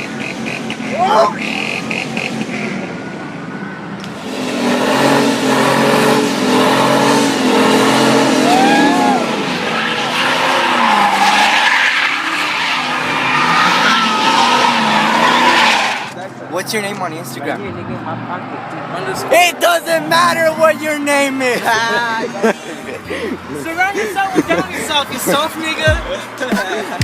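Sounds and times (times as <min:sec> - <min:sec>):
truck engine revving: 0:00.0 - 0:03.2, 0:04.0 - 0:16.2
tyres squealing: 0:08.4 - 0:16.2.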